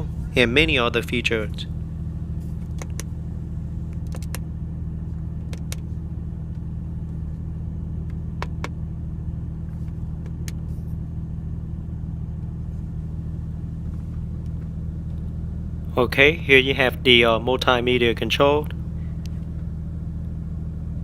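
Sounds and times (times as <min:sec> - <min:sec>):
car engine idling: 0:00.0 - 0:21.0
sharp clicks: 0:04.0 - 0:04.4, 0:05.4 - 0:05.9.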